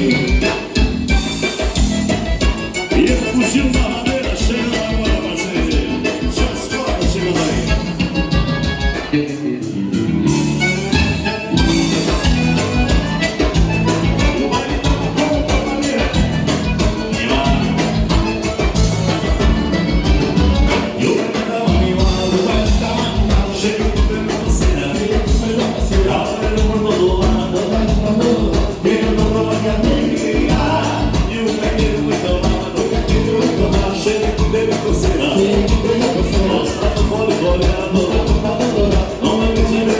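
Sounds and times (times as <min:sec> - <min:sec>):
live dance-band music: 0:00.0 - 0:39.9.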